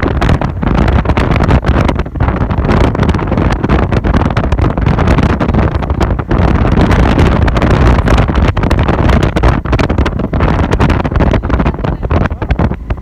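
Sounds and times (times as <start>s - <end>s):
wind buffeting the microphone: 0.0s - 13.0s.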